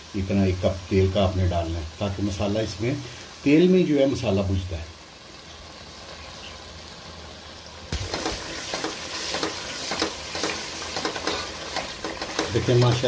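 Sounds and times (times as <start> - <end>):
food sizzling in oil: 0.0 - 13.0
wooden spoon scraping a pot: 8.1 - 13.0.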